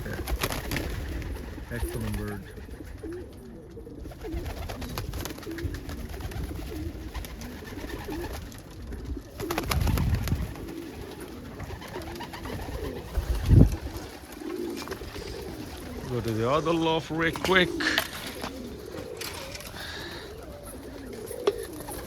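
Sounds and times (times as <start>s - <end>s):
pigeons cooing: 0.0s - 22.0s
rustling: 10.1s - 22.0s.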